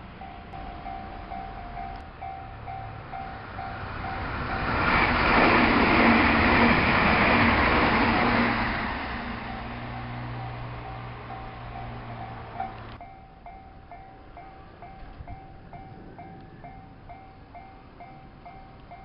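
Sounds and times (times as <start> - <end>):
electronic crossing bell dinging: 0.0 - 4.8, 9.4 - 19.0
electric train passing: 0.0 - 19.0.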